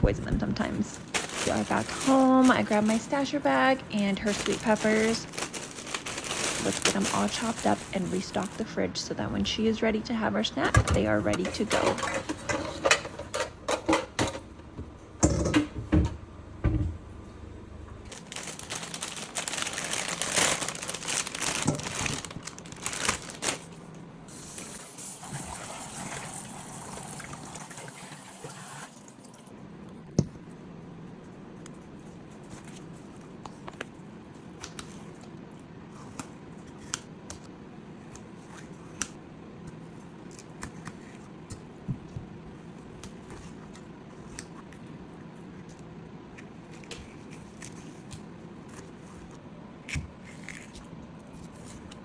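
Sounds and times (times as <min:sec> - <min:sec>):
kitchen tap running: 0:24.4 - 0:29.5.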